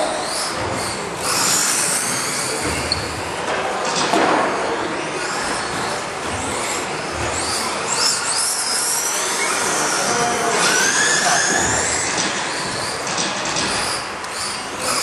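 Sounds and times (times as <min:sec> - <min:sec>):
rc truck motors whining: 0:00.0 - 0:03.4, 0:04.6 - 0:15.0.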